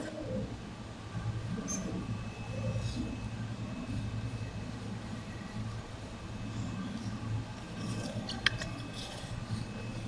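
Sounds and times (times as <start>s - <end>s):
printer idling with fans running: 0.0s - 10.0s.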